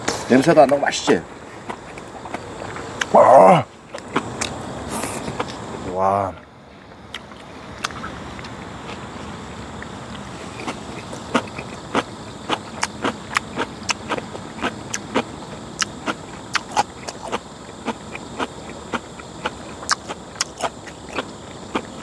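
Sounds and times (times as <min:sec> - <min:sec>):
wet chewing and lip-smacking: 0:01.6 - 0:03.1, 0:03.8 - 0:05.6, 0:07.1 - 0:09.1, 0:09.8 - 0:22.0.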